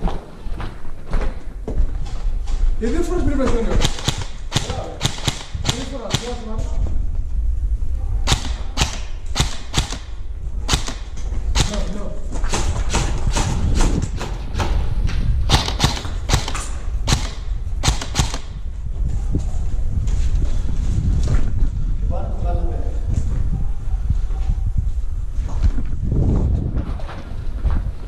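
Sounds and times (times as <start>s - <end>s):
steady low rumble: 1.5s - 28.0s
airsoft guns firing: 3.7s - 6.5s, 8.2s - 14.8s, 15.5s - 18.6s.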